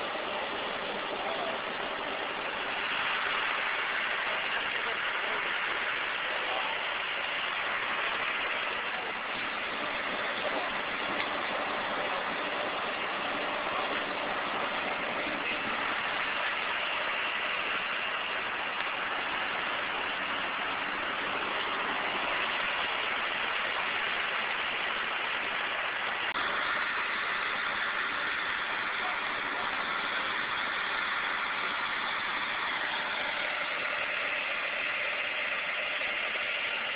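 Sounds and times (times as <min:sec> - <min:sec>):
vehicle engine idling: 0:00.0 - 0:36.9.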